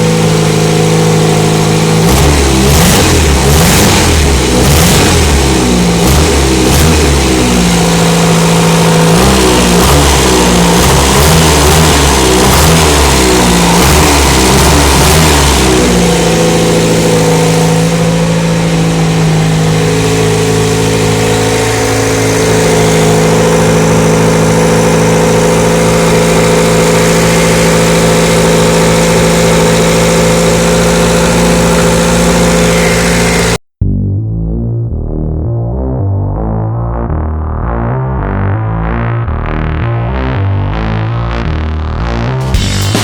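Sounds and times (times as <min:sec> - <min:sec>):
van engine revving and idling: 0:00.0 - 0:33.6.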